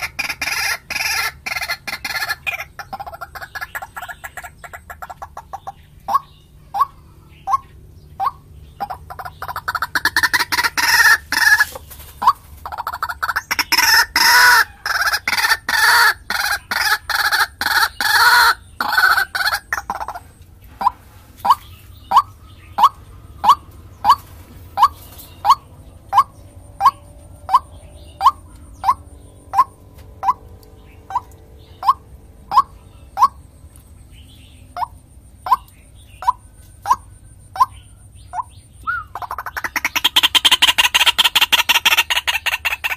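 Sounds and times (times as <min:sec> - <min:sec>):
waterhen croaking calls: 0:00.0 - 0:33.6, 0:34.7 - 0:42.9.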